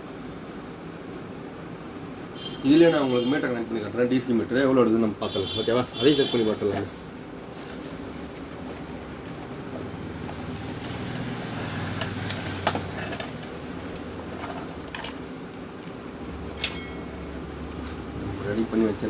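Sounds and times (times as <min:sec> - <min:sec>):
table fan motor hum: 0:05.4 - 0:19.0.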